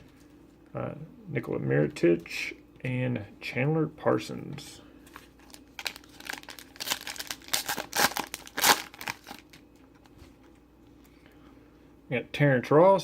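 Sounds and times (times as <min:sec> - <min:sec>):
wrapper crinkling and tearing: 0:05.1 - 0:10.1.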